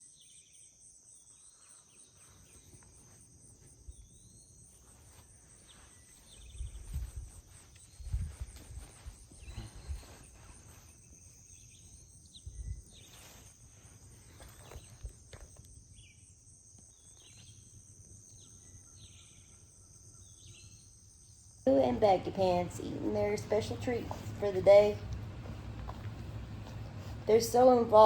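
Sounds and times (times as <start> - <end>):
insect chorus: 0.0 - 28.0
low rumbling thuds: 21.9 - 28.0.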